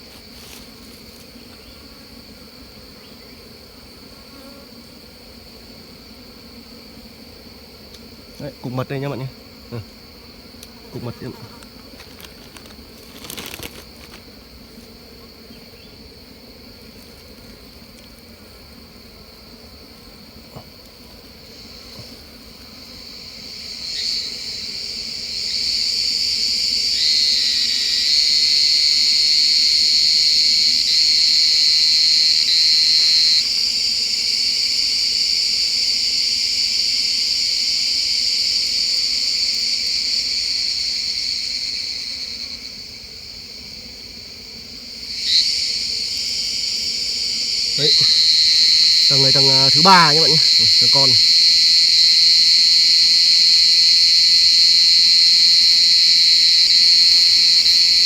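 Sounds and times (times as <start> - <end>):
bees buzzing: 0.0 - 58.0
high-pitched insect drone: 21.4 - 58.0.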